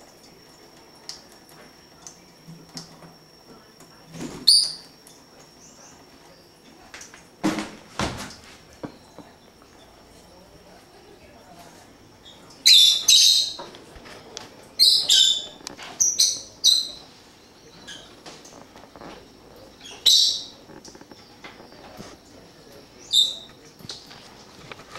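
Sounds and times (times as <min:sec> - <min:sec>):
pet birds chirping: 0:04.4 - 0:06.8, 0:12.2 - 0:13.7, 0:14.7 - 0:23.7.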